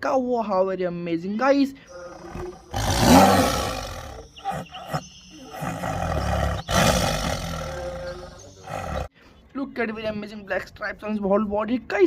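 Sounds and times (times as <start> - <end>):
tiger roaring: 1.9 - 9.1.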